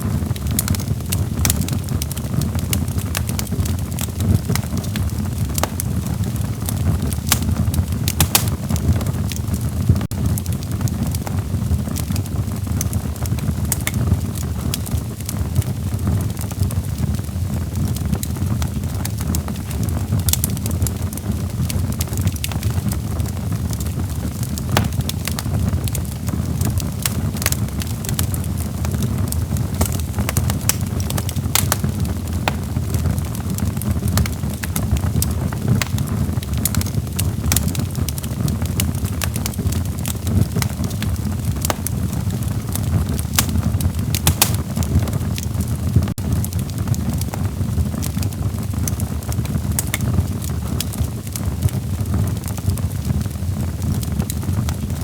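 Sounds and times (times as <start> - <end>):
fire crackling and popping: 0.0 - 55.0.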